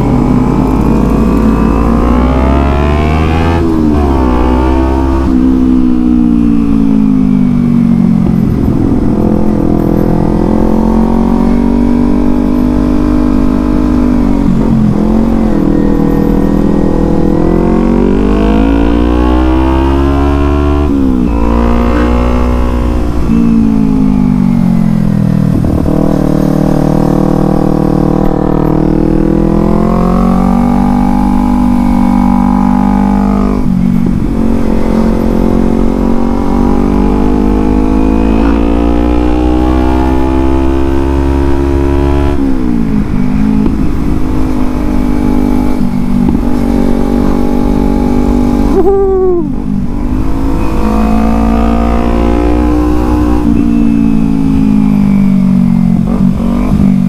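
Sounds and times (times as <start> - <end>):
motorcycle engine revving: 0.0 - 57.0
wind and road rumble: 0.0 - 57.0.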